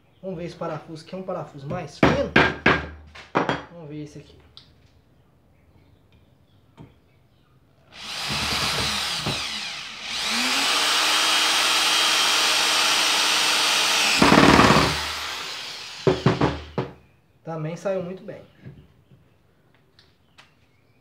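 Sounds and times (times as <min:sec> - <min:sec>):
drill driving screw into wood: 0:07.9 - 0:16.9
drill rattle: 0:07.9 - 0:16.9.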